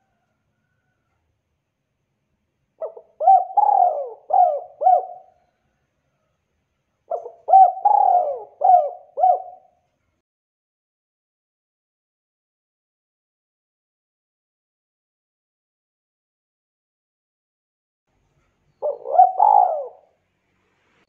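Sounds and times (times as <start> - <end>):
dove cooing: 2.8 - 5.4, 7.1 - 9.8, 18.8 - 20.1.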